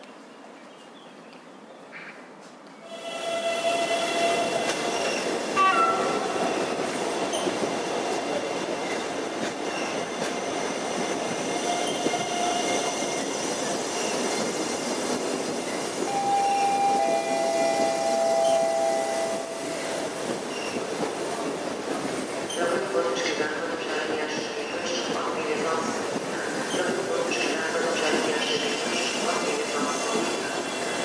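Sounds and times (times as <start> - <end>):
electric train rolling: 2.9 - 23.2
high held tones: 16.0 - 20.0.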